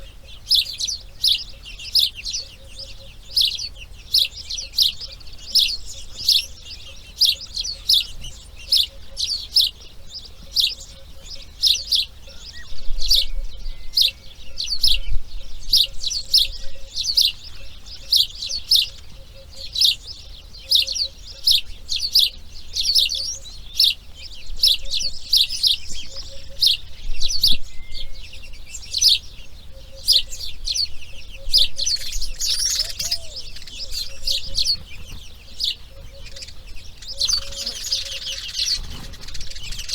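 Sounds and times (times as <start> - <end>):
bird chirping: 0.0 - 39.9
harsher bird call: 32.4 - 34.4.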